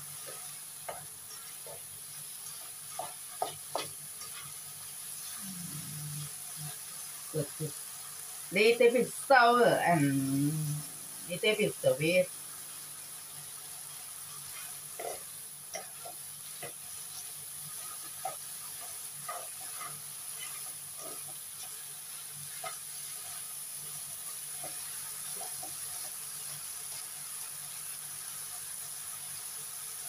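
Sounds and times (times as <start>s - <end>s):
spatula scraping a wok: 0.0s - 5.4s, 14.3s - 26.2s
chili paste sizzling in a wok: 0.0s - 30.0s.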